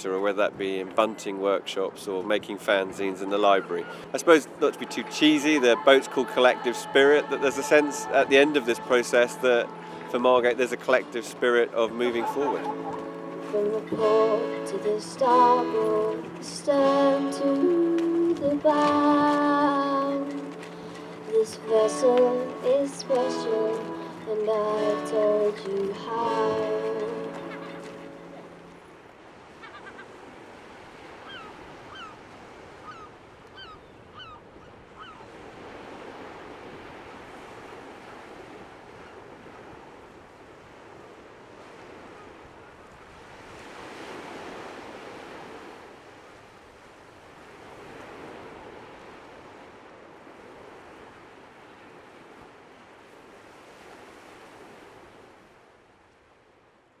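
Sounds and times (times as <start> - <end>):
sea waves washing on shore: 0.0 - 33.7, 34.8 - 56.6
short falling bird calls: 32.8 - 35.3.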